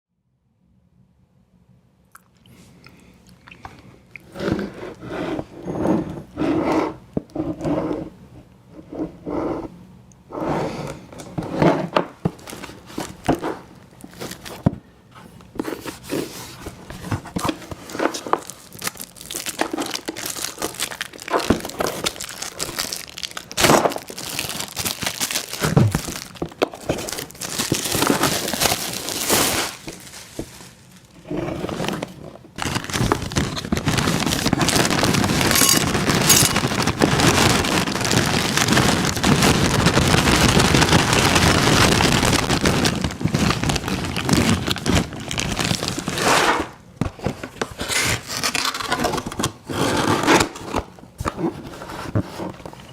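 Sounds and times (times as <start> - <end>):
cereal crinkling and crackling: 17.4 - 46.6.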